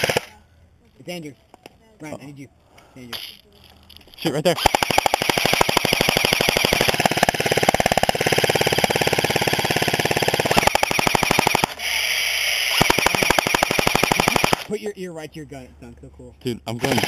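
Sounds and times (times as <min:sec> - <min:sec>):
airsoft gun firing full-auto: 0:00.0 - 0:00.3, 0:04.6 - 0:14.7, 0:16.8 - 0:17.0.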